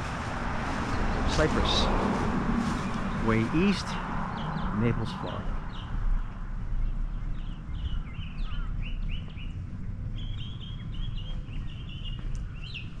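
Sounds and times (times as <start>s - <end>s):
bird chirping: 2.8s - 13.0s.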